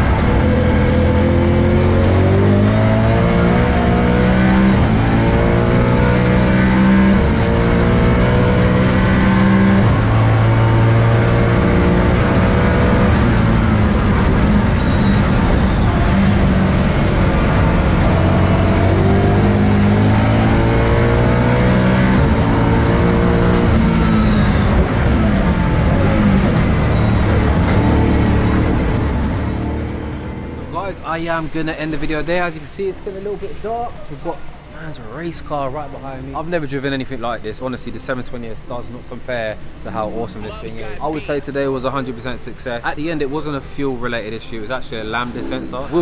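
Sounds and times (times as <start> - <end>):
race car engine accelerating: 0.0 - 32.4.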